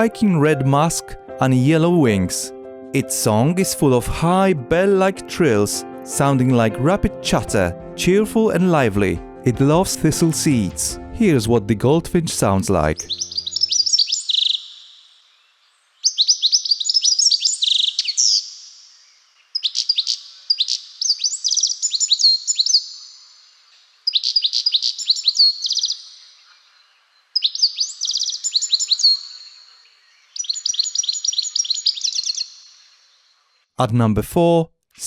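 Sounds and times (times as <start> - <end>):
bird twittering song: 12.4 - 33.7.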